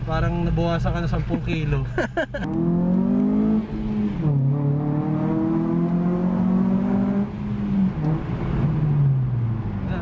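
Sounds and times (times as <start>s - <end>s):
car engine accelerating hard: 2.4s - 10.0s.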